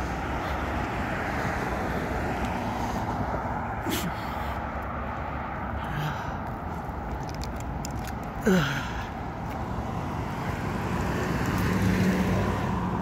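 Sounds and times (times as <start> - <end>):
road traffic passing: 0.0 - 13.0
vehicle engine passing: 9.6 - 13.0.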